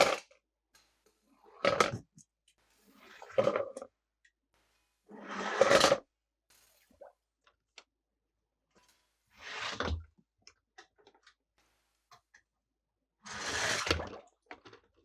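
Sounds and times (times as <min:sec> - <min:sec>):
plastic toy cars scraping: 0:05.1 - 0:06.1, 0:09.4 - 0:10.1, 0:13.2 - 0:14.8.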